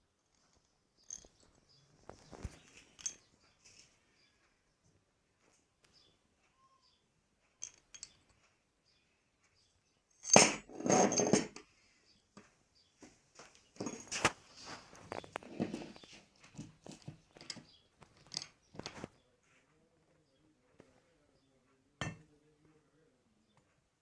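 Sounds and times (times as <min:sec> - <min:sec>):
tools clicking on a workbench: 0:07.6 - 0:08.4, 0:15.1 - 0:19.1.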